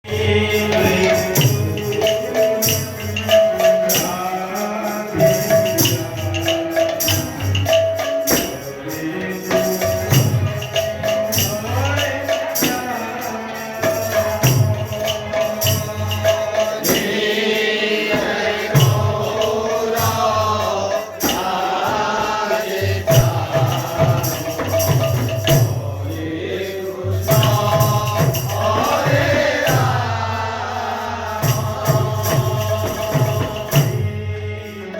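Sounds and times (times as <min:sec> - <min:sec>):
voices singing and chanting: 0:00.0 - 0:07.5, 0:08.5 - 0:34.9
drum beats: 0:00.0 - 0:34.9
jingling percussion: 0:00.1 - 0:34.9.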